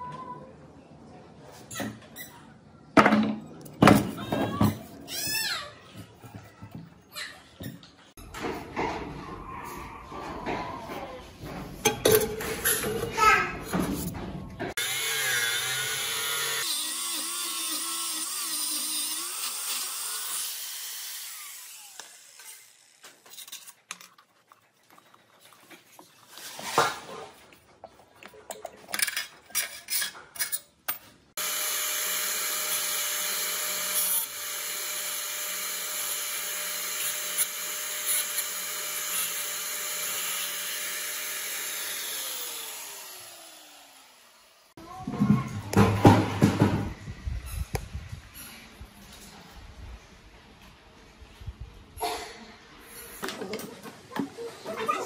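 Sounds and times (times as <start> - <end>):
power tool running: 14.8 - 23.3, 31.4 - 44.8
clicks and scrapes: 22.0 - 31.2.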